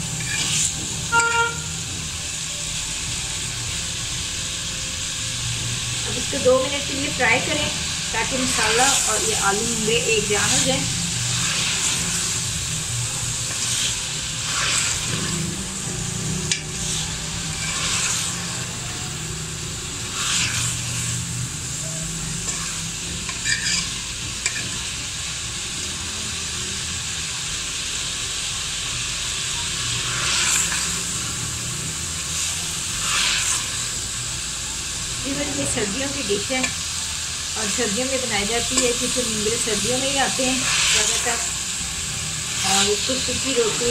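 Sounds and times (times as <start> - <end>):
vegetables sizzling in a pot: 0.0 - 43.9
steel spoon scraping a pot: 0.1 - 1.5, 22.4 - 24.7.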